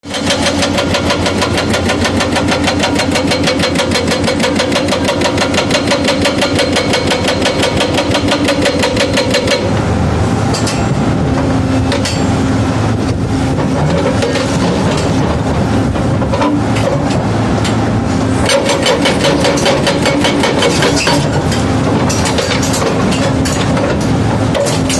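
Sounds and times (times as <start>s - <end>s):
excavator engine running: 0.0s - 24.9s
hydraulic breaker hammering: 0.1s - 9.9s, 10.5s - 12.4s, 18.4s - 24.9s.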